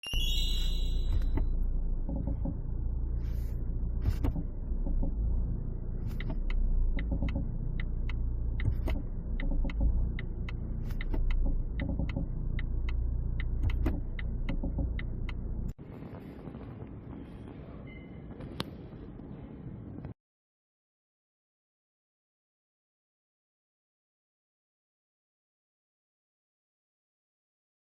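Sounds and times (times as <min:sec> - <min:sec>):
car engine rumble: 0:00.2 - 0:20.1
rattle on gear shifting: 0:01.1 - 0:15.7.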